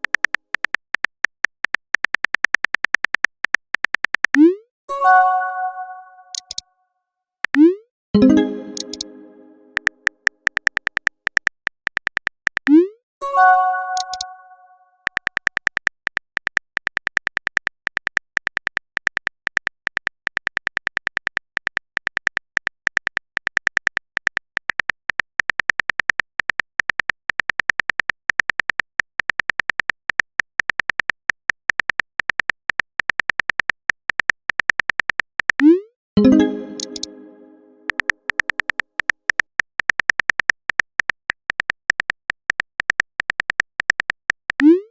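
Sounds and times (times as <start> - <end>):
chime-like tone: 4.9 - 6.3, 8.2 - 9.8, 36.2 - 37.9
text-typing clicks: 5.8 - 6.6, 7.4 - 14.5, 15.1 - 44.9.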